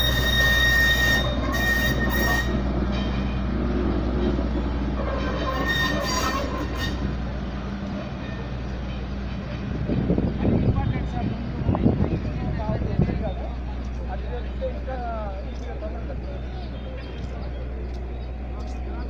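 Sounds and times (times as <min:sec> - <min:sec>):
train wheels squealing: 0:00.0 - 0:03.3, 0:04.9 - 0:07.2
train rumbling on rails: 0:00.0 - 0:19.0.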